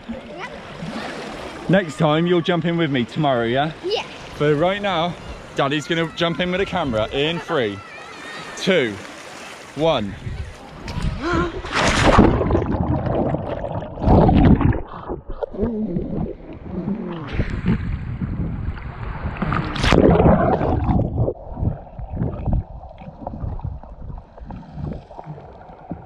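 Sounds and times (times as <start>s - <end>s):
underwater bubbly rushing: 11.0s - 26.0s.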